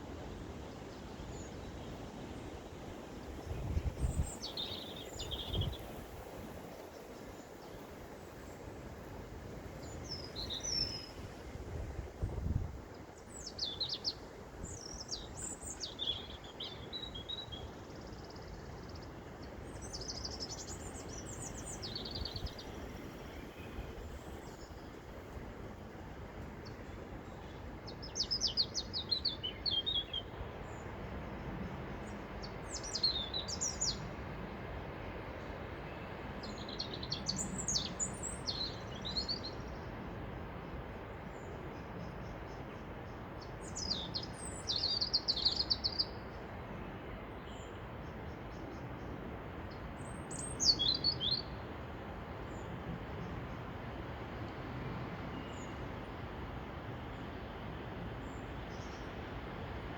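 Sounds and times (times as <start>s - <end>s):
songbirds singing: 0.0s - 34.6s, 35.3s - 51.8s, 52.4s - 59.9s
wind noise: 3.2s - 6.8s, 11.1s - 13.1s.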